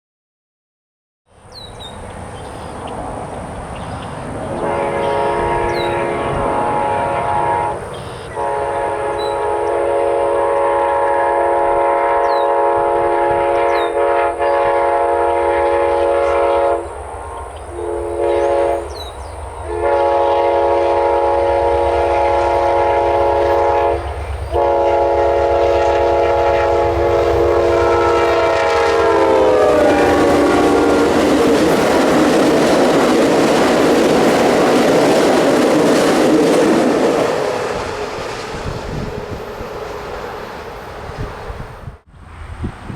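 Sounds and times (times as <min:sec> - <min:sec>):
train wheels rushing: 0:01.9 - 0:42.9
locomotive air horn: 0:04.5 - 0:32.3.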